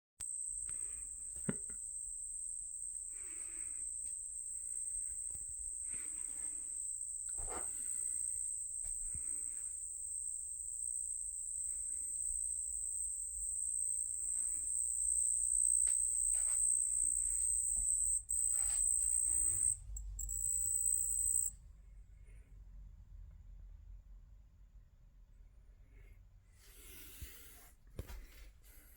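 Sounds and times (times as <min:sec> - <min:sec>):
cricket trilling: 0:00.2 - 0:21.5.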